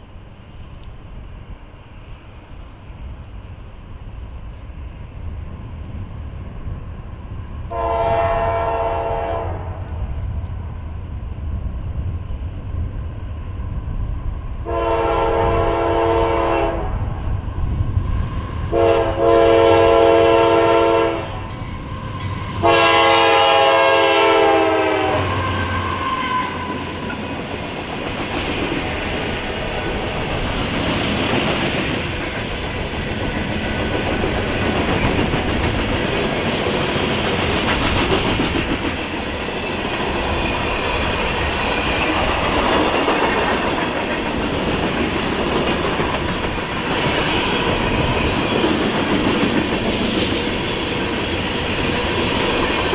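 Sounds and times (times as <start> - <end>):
train engine rumble: 0.0 - 52.9
locomotive horn blasts: 7.7 - 9.9, 14.6 - 17.1, 18.7 - 21.4, 22.6 - 26.8.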